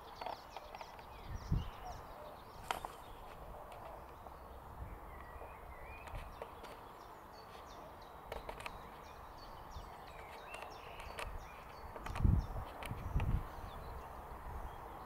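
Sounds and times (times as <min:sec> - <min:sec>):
small birds chirping: 0:00.0 - 0:15.0
sharp clicks: 0:10.1 - 0:13.4.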